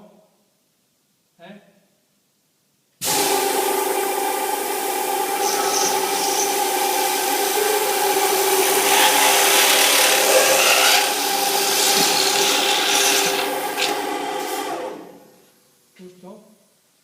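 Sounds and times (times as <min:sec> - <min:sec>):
drilling machine motors humming: 0:03.1 - 0:15.2
drill bits rasping into metal: 0:08.6 - 0:13.9.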